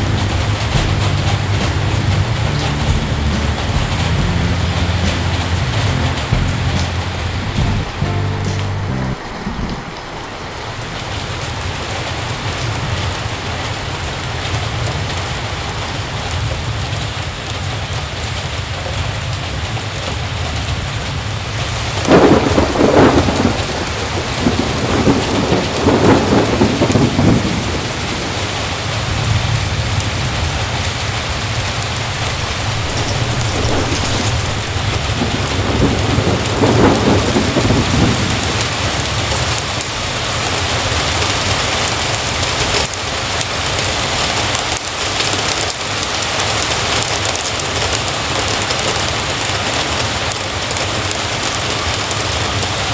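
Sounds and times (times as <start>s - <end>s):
thunder rolling: 0.0s - 15.9s, 21.6s - 42.9s
heavy rain: 0.0s - 52.9s.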